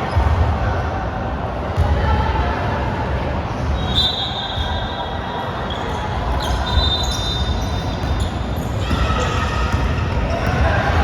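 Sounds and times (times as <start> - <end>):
sneakers squeaking on floor: 3.6 - 11.0
basketball bouncing on court: 7.4 - 11.0.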